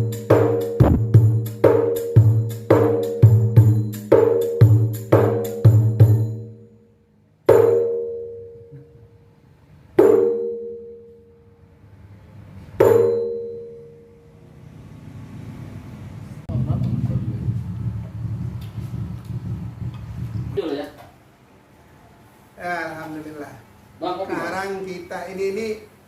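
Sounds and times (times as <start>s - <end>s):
frame drum struck by hand: 0.0s - 6.4s, 7.5s - 8.0s, 10.0s - 10.6s.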